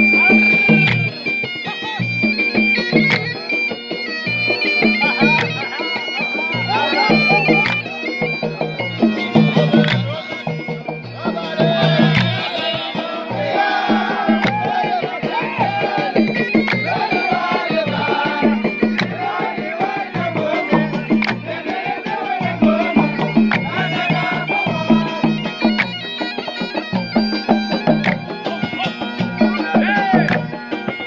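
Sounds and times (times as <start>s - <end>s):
wavering reedy melody: 0.0s - 31.0s
steady drum beat: 8.5s - 30.7s.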